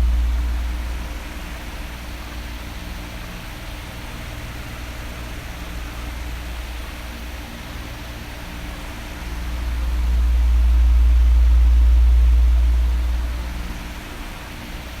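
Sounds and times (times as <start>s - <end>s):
low rumble: 0.0s - 2.6s, 9.1s - 14.0s
electric fan running: 0.0s - 15.0s.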